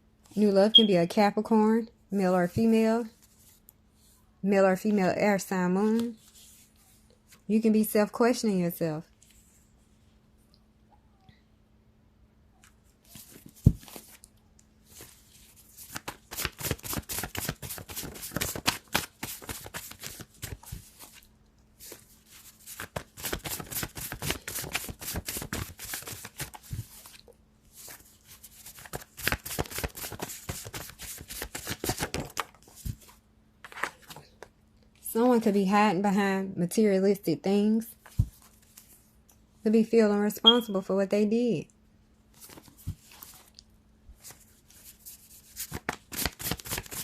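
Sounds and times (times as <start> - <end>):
cards being shuffled: 14.9 - 27.2, 27.8 - 34.4, 42.3 - 43.5, 44.2 - 47.0.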